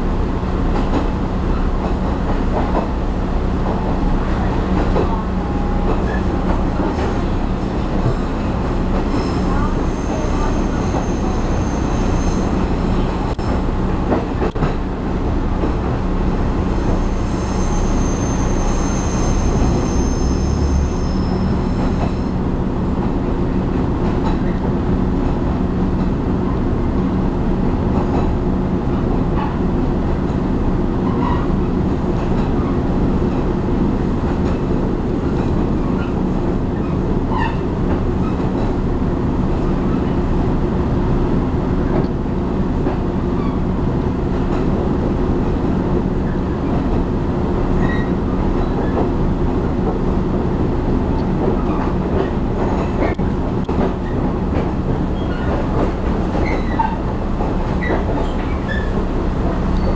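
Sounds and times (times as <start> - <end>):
train rumble from inside carriage: 0.0 - 59.9
high-pitched wheel squeal: 9.1 - 13.6, 16.8 - 22.3.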